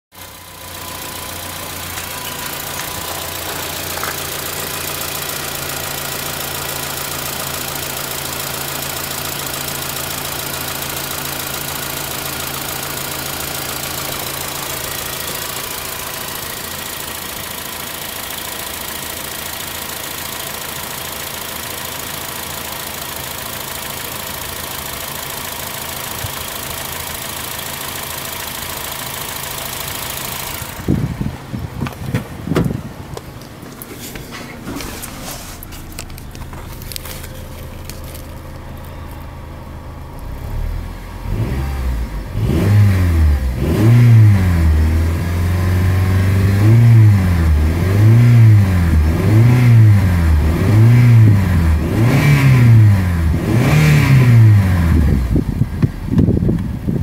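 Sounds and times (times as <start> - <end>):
car engine idling: 0.1 - 57.0.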